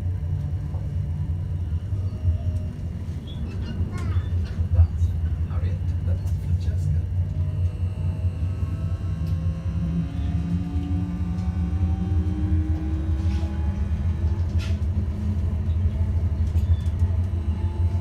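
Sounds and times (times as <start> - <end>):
tram low rumble: 0.0 - 18.0
electric motor whine: 7.2 - 15.4.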